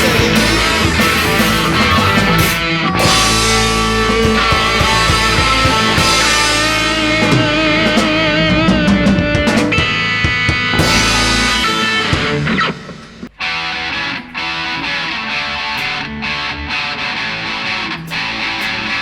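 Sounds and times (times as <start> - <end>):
drum kit: 0.0 - 13.4
lead guitar bent notes: 0.0 - 19.0
rock guitar: 0.0 - 19.0.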